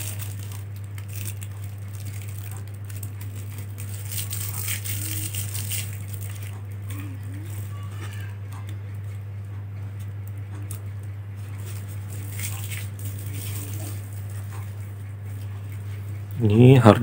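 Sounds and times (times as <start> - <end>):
small parts clicking and rustling: 0.0 - 8.8
low electrical hum: 0.0 - 17.0.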